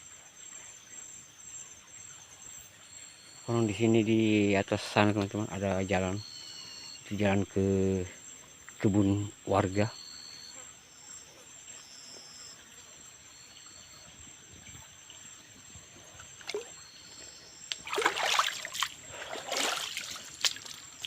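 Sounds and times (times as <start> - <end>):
insect chirring: 0.0 - 21.0
water splashing in a stream: 16.1 - 21.0.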